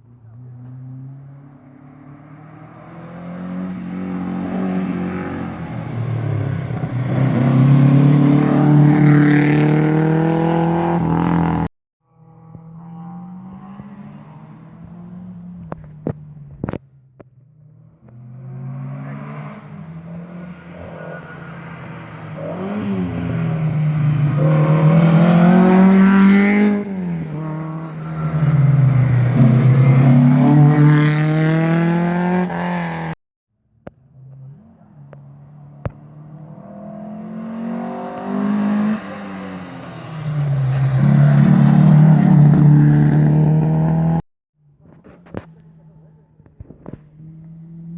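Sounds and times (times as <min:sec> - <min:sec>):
rally car approaching: 0:34.1 - 0:44.2
rally car engine accelerating: 0:34.2 - 0:44.2.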